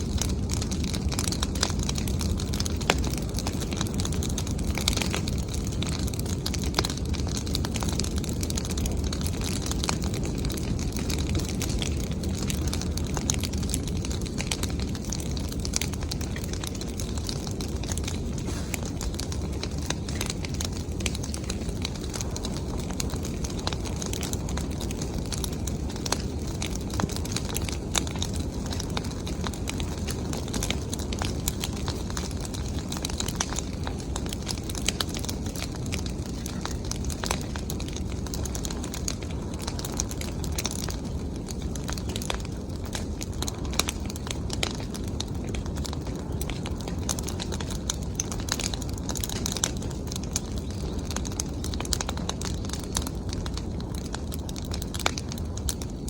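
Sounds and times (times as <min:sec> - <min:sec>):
bonfire crackling and popping: 0:00.0 - 0:56.0.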